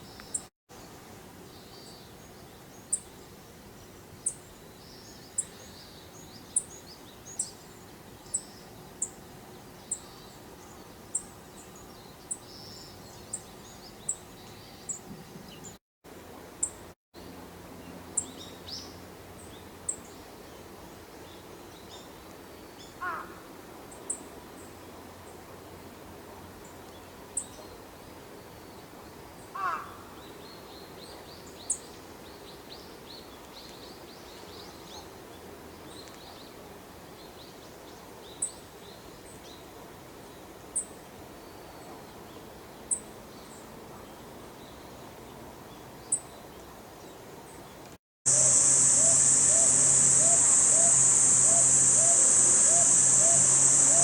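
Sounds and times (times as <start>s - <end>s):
outdoor background noise: 0.0s - 54.0s
lower falling bird call: 48.3s - 54.0s
soft bird chirps: 48.3s - 54.0s.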